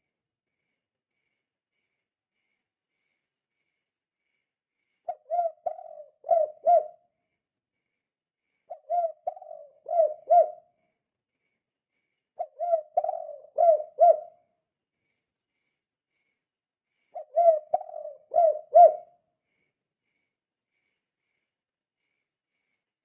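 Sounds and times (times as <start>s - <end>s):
dove cooing: 5.1s - 7.0s, 8.7s - 10.7s, 12.4s - 14.4s, 17.2s - 19.2s.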